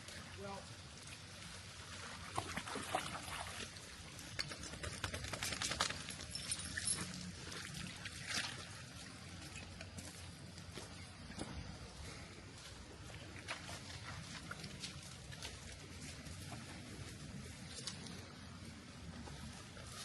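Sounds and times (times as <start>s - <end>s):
water trickling and pouring: 0.2s - 4.5s, 5.8s - 10.4s
dogs splashing in water: 0.9s - 10.0s.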